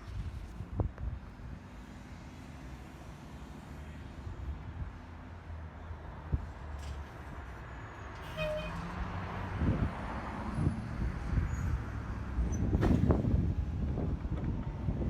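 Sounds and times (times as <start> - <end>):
bus interior rumble: 8.2 - 15.0.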